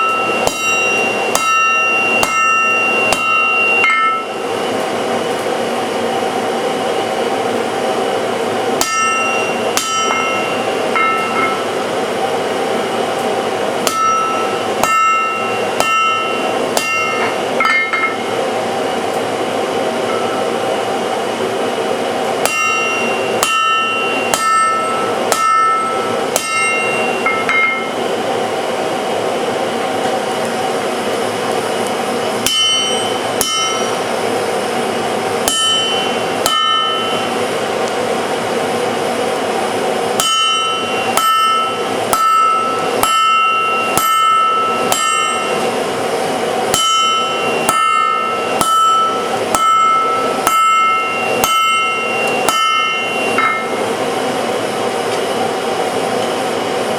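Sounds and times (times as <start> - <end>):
hammer striking steel on anvil: 0.0 - 4.5, 8.8 - 11.9, 13.8 - 18.4, 22.4 - 28.1, 32.4 - 34.2, 35.4 - 37.4, 40.2 - 45.8, 46.7 - 53.9.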